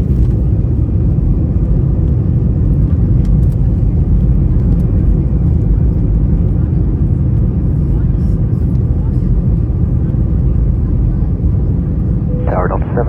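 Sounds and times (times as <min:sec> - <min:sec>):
airplane cabin engine rumble: 0:00.0 - 0:13.0
airflow over fuselage: 0:05.6 - 0:13.0.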